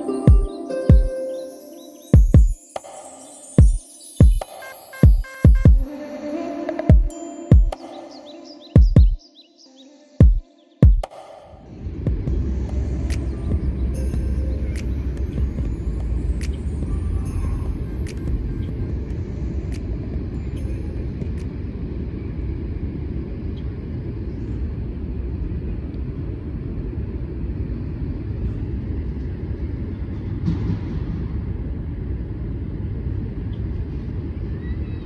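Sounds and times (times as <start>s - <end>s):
low rumble of outdoor ambience: 11.5s - 35.0s.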